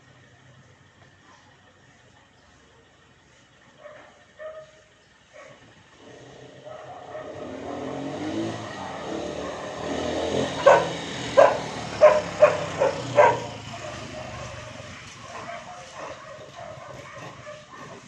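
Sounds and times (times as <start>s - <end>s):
engine running: 0.0s - 18.0s
dog barking: 3.8s - 5.7s, 6.6s - 7.9s, 8.6s - 18.0s.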